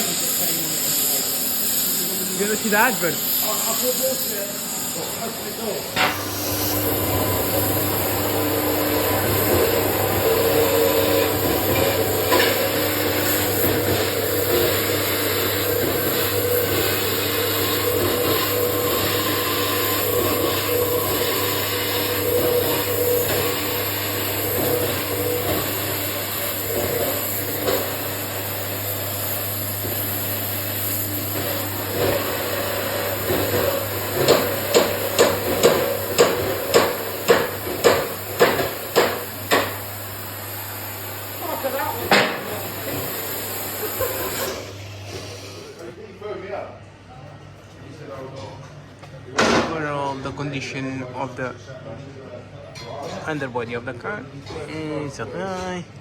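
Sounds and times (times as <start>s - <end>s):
workshop tool humming: 0.0s - 51.3s.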